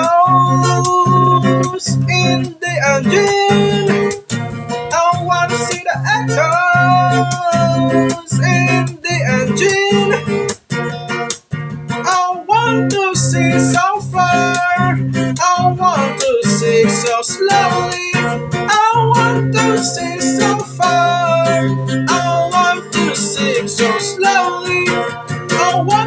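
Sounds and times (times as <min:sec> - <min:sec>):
strummed acoustic guitar: 0:00.0 - 0:26.0.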